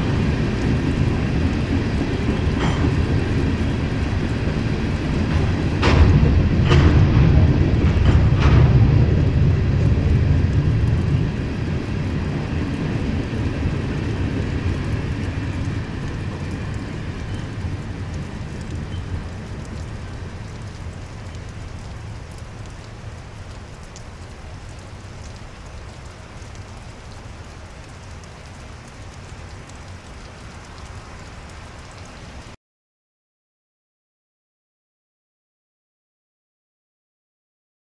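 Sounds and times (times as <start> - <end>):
freight train rumbling past: 0.0 - 22.6
steady rain: 0.0 - 32.6.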